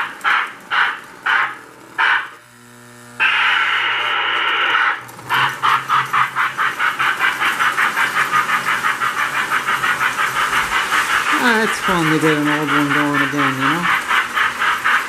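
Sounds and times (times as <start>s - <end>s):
model locomotive chuffing: 0.0s - 2.4s, 4.6s - 15.0s
low electric hum: 1.6s - 5.2s
model locomotive steam hiss: 3.2s - 15.0s.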